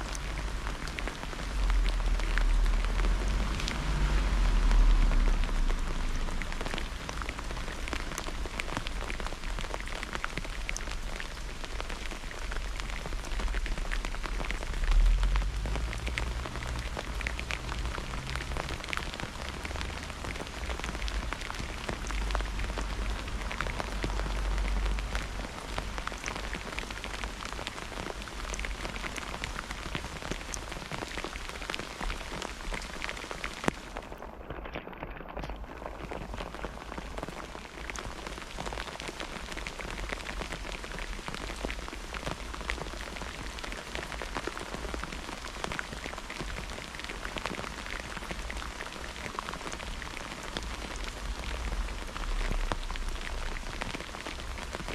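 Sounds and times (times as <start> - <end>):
heavy rain: 0.0 - 54.9
raindrops tapping: 0.0 - 54.9.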